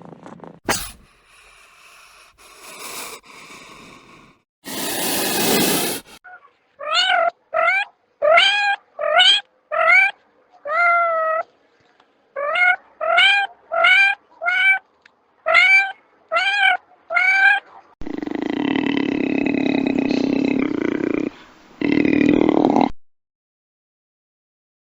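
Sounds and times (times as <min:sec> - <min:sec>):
cat hissing: 0:00.7 - 0:06.2.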